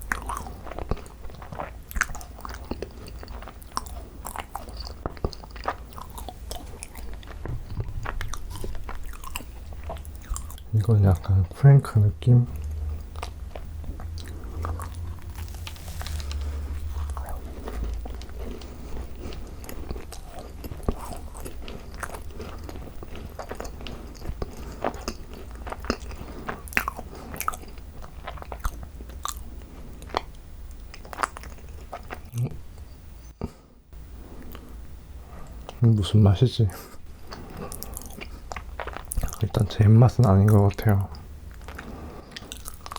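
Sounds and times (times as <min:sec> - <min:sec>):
close chewing crunches: 0:00.0 - 0:11.5, 0:12.2 - 0:32.6, 0:34.3 - 0:42.9
low rumble: 0:07.4 - 0:10.8, 0:12.1 - 0:19.5.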